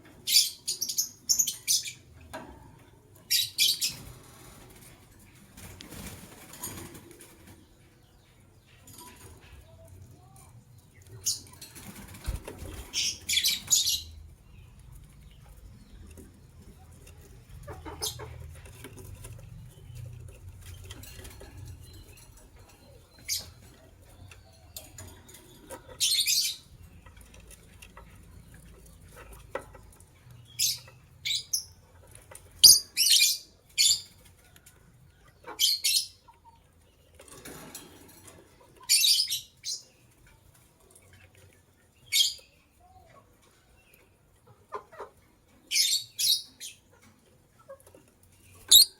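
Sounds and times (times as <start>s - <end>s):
lovebirds chirping: 12.7s - 34.2s, 41.1s - 44.3s, 44.9s - 47.0s, 47.6s - 48.9s.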